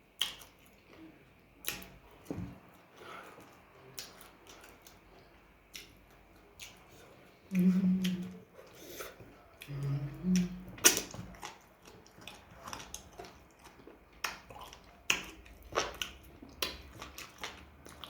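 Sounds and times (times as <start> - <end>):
person humming: 7.5 - 8.4, 9.7 - 10.7
chewing and mouth smacks: 10.4 - 18.0.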